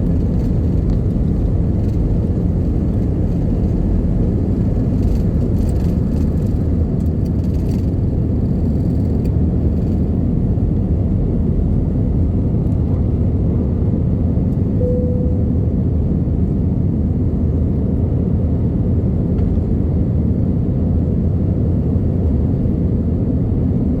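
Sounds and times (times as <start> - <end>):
airplane engine rumble in cabin: 0.0 - 24.0
faint tone: 14.8 - 16.1.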